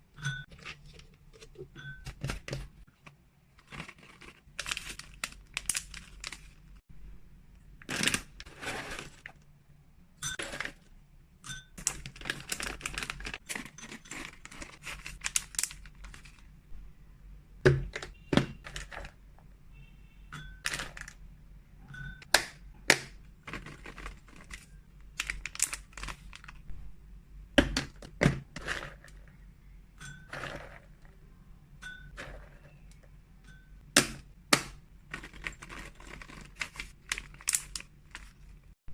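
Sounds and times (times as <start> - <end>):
plastic packaging crinkling: 3.6 - 6.8, 7.8 - 9.4, 11.8 - 16.5, 23.4 - 26.7, 35.1 - 38.7.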